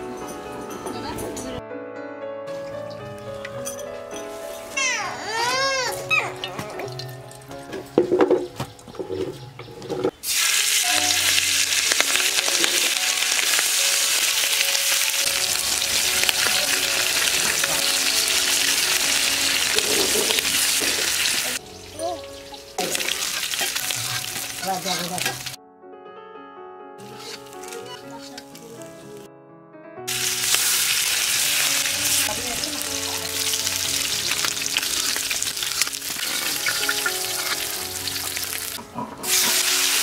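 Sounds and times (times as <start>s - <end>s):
background music: 0.0s - 40.0s
food sizzling in hot oil: 10.2s - 25.6s, 27.0s - 28.8s, 30.1s - 40.0s.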